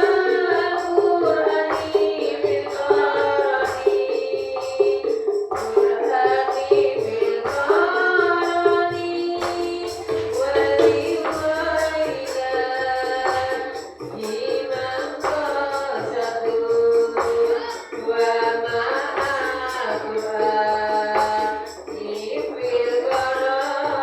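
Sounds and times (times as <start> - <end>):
frame drums beating: 0.0 - 24.0
voices singing devotional chant: 0.0 - 24.0.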